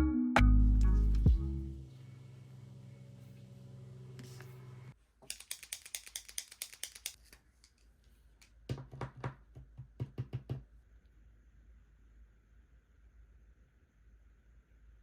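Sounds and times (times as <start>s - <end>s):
stationery clicks and taps: 5.2s - 7.2s.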